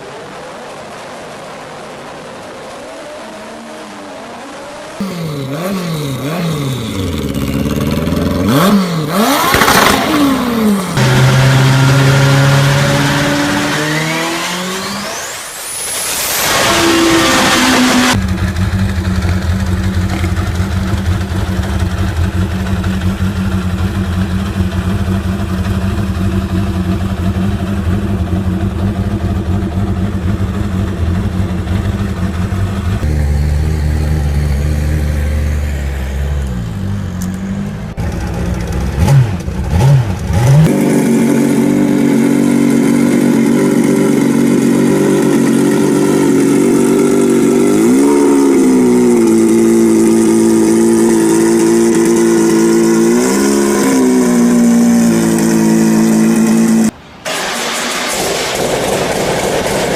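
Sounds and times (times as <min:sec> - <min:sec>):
motorcycle engine idling and revving: 0:03.0 - 0:15.6, 0:16.3 - 0:59.9.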